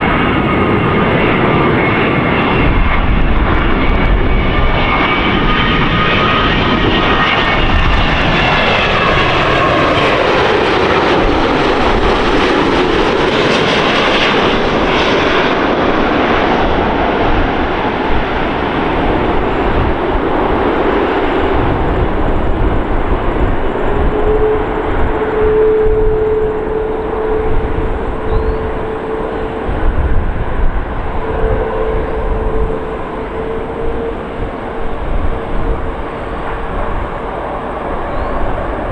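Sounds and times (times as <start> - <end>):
jet airliner passing: 0.0 - 38.9.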